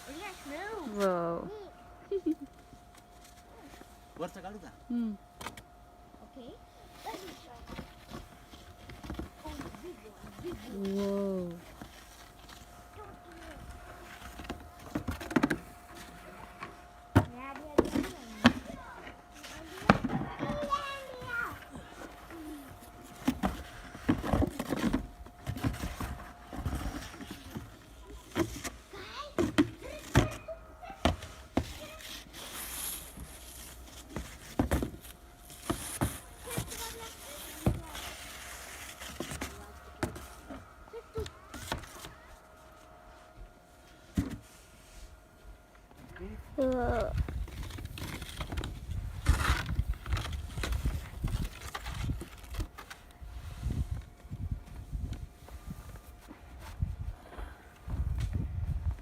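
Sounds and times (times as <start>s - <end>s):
snow being dug and crunched: 31.8s - 34.2s.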